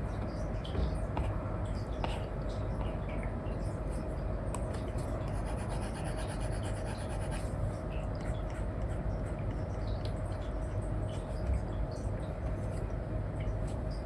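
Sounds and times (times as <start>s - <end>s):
background hiss and hum: 0.0s - 14.0s
stylus scratching on screen: 5.2s - 7.6s.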